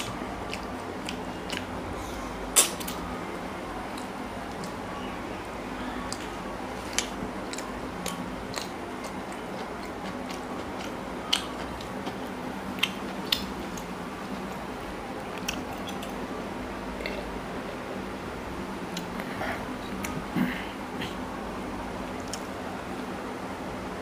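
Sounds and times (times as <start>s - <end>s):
person chewing food: 0.0s - 3.0s, 6.0s - 14.6s, 15.2s - 16.2s
low background hum: 0.0s - 24.0s.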